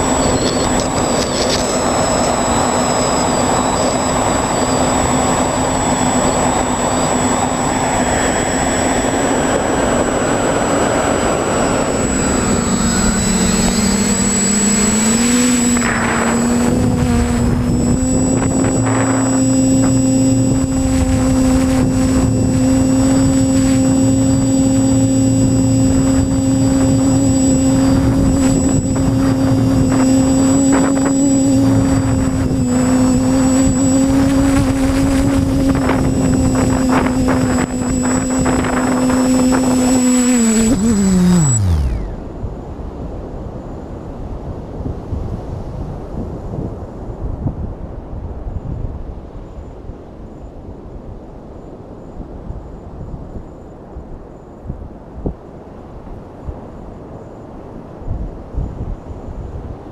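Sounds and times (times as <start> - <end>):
drone motors whining: 0.0 - 42.4.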